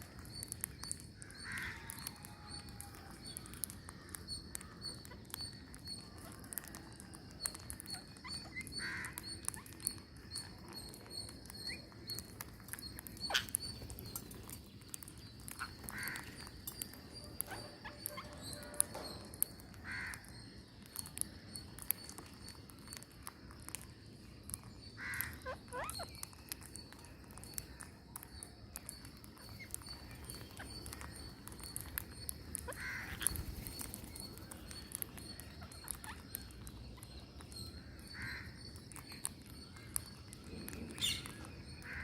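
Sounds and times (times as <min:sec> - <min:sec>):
harsh bird calls: 0:07.8 - 0:20.6, 0:28.8 - 0:42.0.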